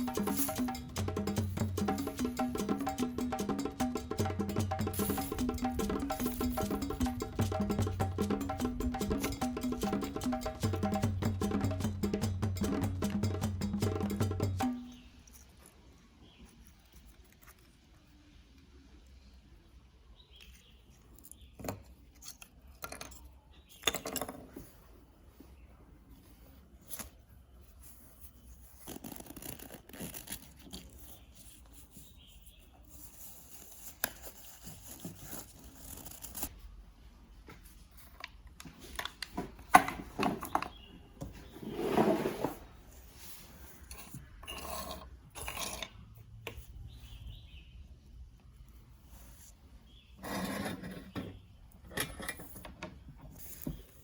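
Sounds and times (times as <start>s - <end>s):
scraping and rubbing: 41.4s - 45.8s.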